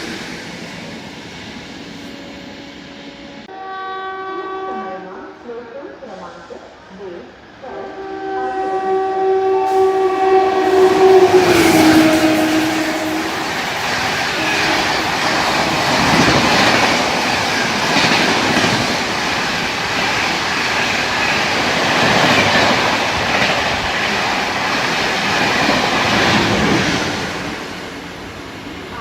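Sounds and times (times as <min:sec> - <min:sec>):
train wheels clattering: 0:09.7 - 0:28.1
wheels ringing on rails: 0:09.8 - 0:29.0.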